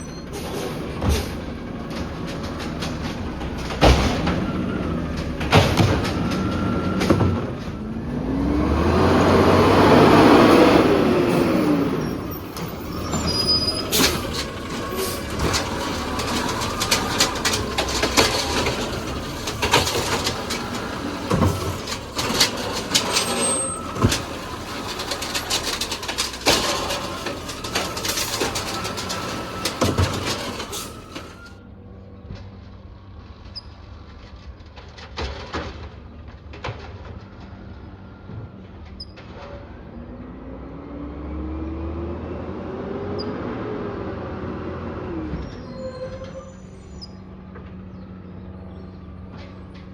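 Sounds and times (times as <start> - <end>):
hydraulic arm whine: 0.0 - 31.6
truck engine hum: 0.0 - 49.9
clatters and bangs: 0.3 - 7.8, 12.4 - 31.6, 34.2 - 39.7.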